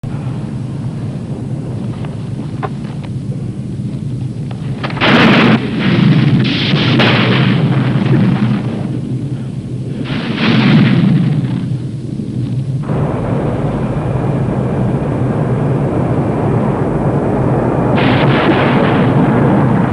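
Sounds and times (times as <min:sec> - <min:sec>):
airliner drone: 0:00.0 - 0:19.9
thunder crashing: 0:04.6 - 0:19.9.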